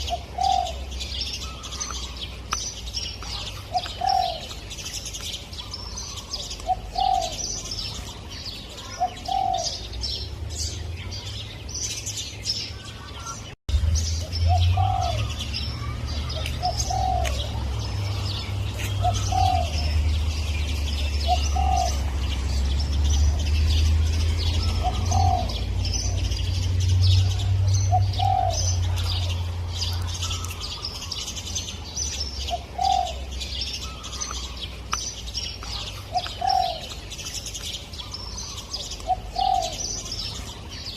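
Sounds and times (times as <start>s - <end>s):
dove cooing: 0.0s - 2.1s, 3.3s - 4.6s, 5.7s - 9.9s, 14.5s - 20.0s, 21.0s - 22.2s, 24.5s - 26.5s, 27.2s - 29.4s, 32.4s - 34.0s, 35.7s - 37.1s, 38.0s - 40.3s
small birds chirping: 0.0s - 40.9s.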